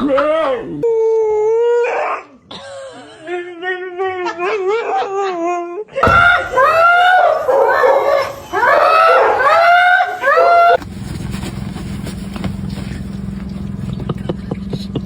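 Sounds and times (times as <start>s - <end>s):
dog yowling: 0.0s - 2.4s, 3.6s - 10.8s
dog whining: 3.6s - 10.8s.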